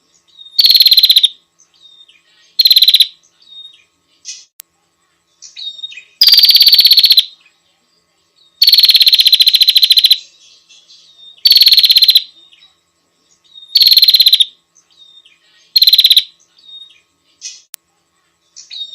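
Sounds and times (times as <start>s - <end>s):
bird rattling trills: 0.6s - 1.3s, 2.6s - 3.1s, 6.2s - 7.3s, 8.6s - 10.2s, 11.4s - 12.2s, 13.7s - 14.5s, 15.8s - 16.3s.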